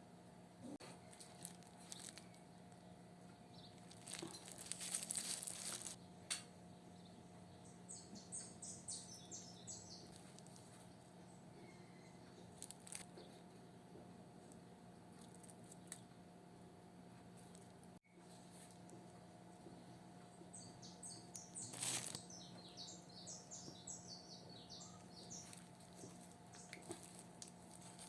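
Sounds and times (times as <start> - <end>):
small bird chirping: 1.0 - 13.8, 19.5 - 28.0.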